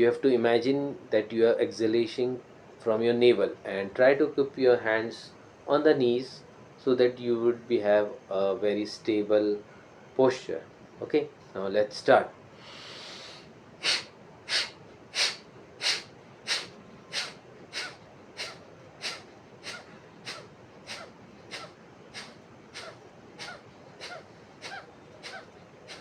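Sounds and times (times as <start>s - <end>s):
forceful short exhalations: 12.6s - 26.0s
person breathing in: 12.6s - 26.0s.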